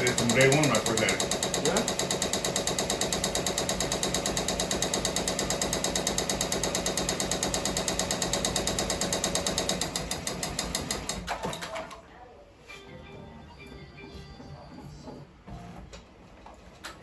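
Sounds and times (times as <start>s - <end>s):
embroidery machine stitching: 0.0s - 11.7s.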